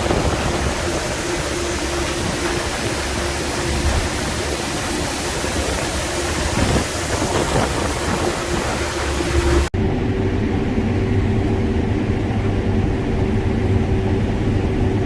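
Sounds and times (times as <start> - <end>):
rushing road noise: 0.0 - 12.8
low engine hum: 0.0 - 15.0.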